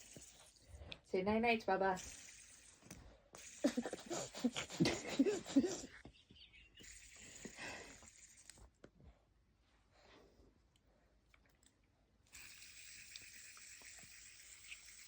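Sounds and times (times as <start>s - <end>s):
breathy hiss: 6.8s - 8.6s.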